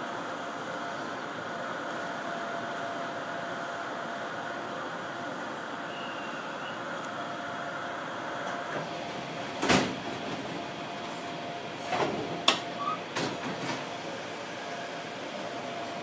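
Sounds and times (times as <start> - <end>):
train running noise in cab: 0.0 - 16.0.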